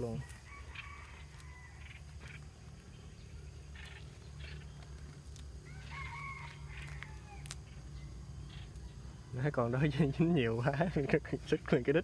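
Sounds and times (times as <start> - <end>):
faint bird calls: 0.0 - 9.4
low steady hum: 0.0 - 12.0.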